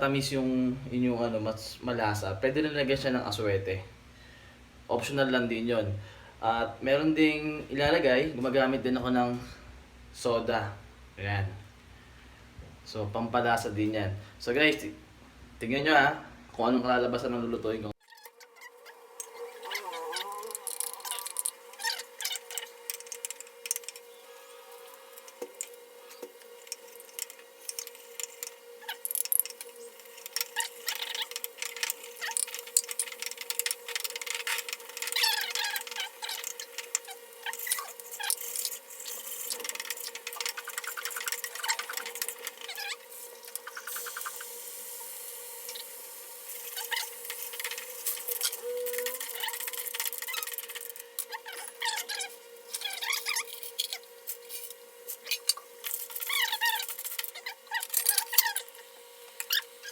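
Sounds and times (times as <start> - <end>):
sizzling hiss: 18.9 - 50.9.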